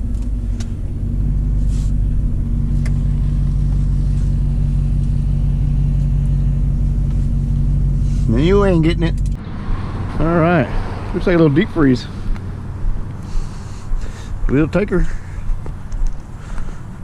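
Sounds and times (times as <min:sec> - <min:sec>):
truck engine pulling away: 0:00.0 - 0:15.2.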